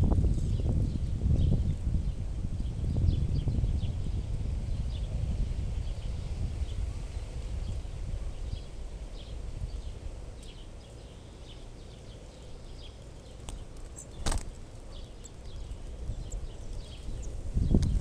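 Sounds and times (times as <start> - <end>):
low rumbling noise: 0.0 - 18.0
sharp crack: 14.2 - 14.6.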